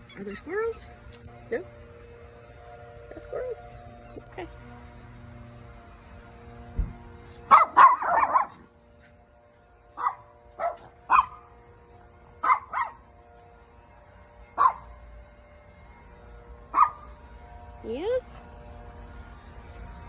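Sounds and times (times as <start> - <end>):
dog barking: 7.5 - 8.7, 10.0 - 11.4, 12.4 - 13.0, 14.6 - 14.8, 16.7 - 17.1.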